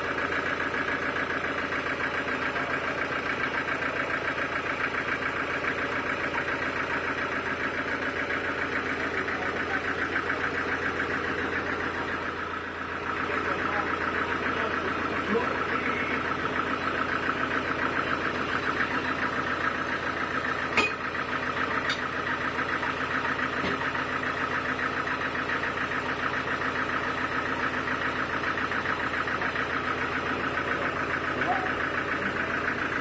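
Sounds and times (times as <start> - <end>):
sawmill machinery pulsing: 0.0 - 33.0.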